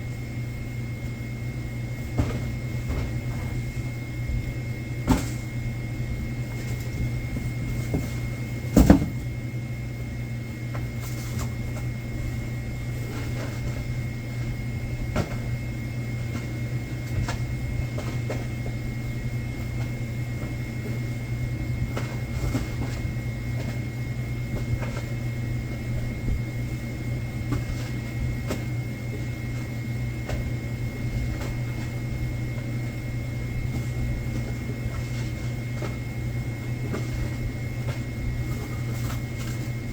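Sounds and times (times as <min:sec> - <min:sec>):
machine hum: 0:00.0 - 0:39.9
knocks and clicks of boxes: 0:07.4 - 0:09.3.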